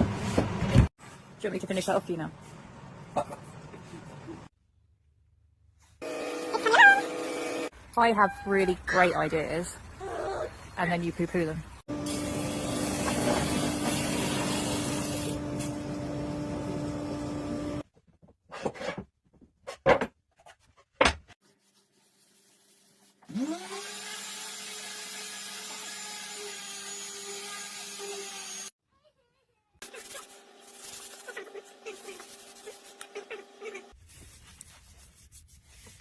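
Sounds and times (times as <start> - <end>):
woodworking power tool running: 6.0 - 7.7, 11.9 - 17.8, 23.3 - 28.7.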